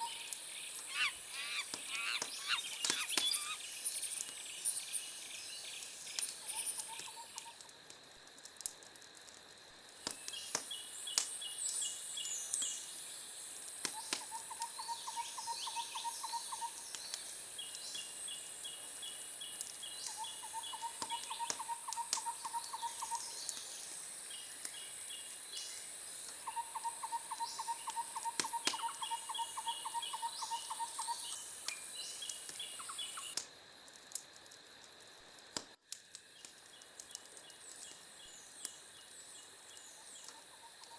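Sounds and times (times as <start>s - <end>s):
bird trills: 0.0s - 3.7s
high insect drone: 0.0s - 40.9s
wood fire crackling and popping: 1.6s - 14.8s, 16.8s - 20.2s, 20.8s - 25.1s, 31.3s - 40.9s.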